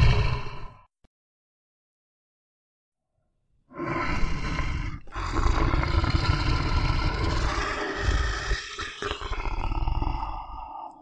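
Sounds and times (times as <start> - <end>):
bear growling and roaring: 0.0 - 0.8, 3.7 - 11.0.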